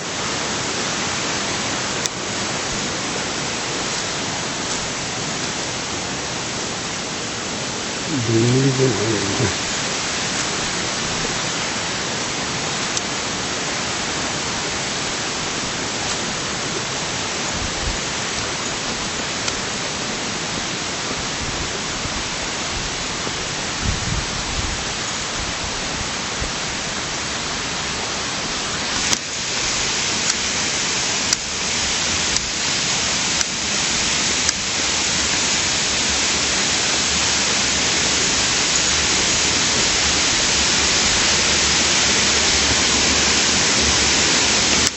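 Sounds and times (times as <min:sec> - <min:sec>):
stream water flowing: 0:09.5 - 0:23.8, 0:26.7 - 0:44.9.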